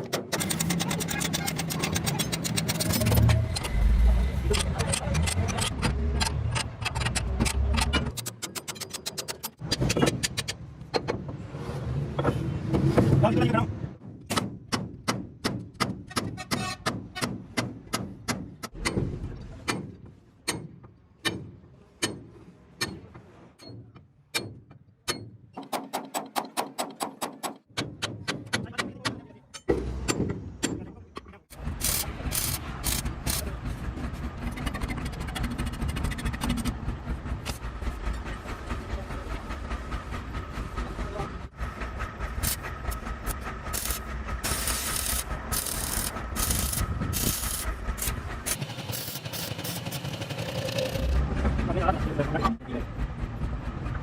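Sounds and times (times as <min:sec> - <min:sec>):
mechanical running noise: 0:00.3 - 0:09.9, 0:31.6 - 0:54.0.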